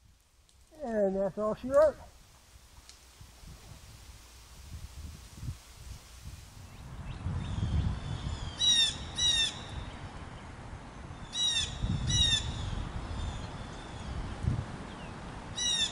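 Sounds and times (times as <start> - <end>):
low wind rumble: 0.0 - 15.9
bird harsh calls: 8.4 - 9.8, 15.6 - 15.9.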